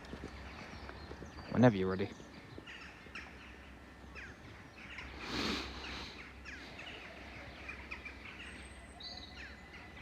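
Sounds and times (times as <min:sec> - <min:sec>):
small birds chirping: 0:00.0 - 0:10.0
burst of hiss: 0:05.2 - 0:06.1.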